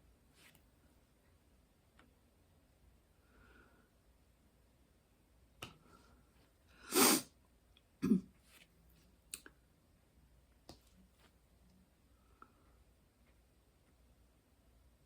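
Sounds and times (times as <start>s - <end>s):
woman sneezing: 6.9s - 7.3s.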